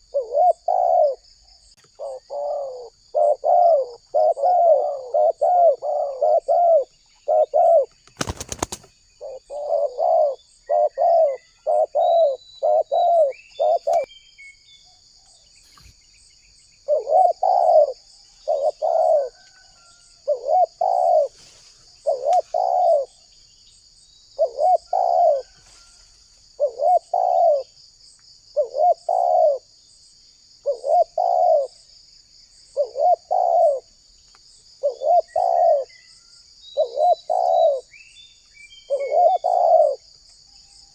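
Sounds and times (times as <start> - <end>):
dove cooing: 0.0 - 1.2, 1.8 - 14.1, 16.8 - 21.4, 22.0 - 23.2, 24.4 - 25.9, 26.5 - 27.7, 28.6 - 29.7, 30.6 - 31.8, 32.7 - 33.9, 34.8 - 36.0, 36.8 - 38.0, 38.9 - 40.1.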